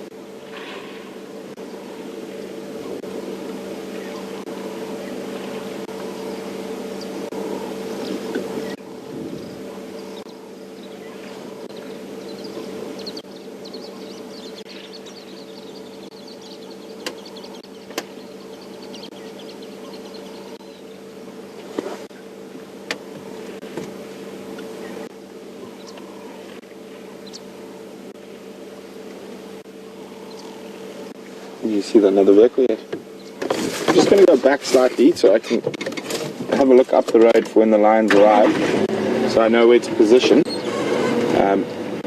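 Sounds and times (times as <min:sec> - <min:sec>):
vehicle engine idling: 0:00.0 - 0:35.7
faint high chirping: 0:05.9 - 0:21.2, 0:24.7 - 0:27.6.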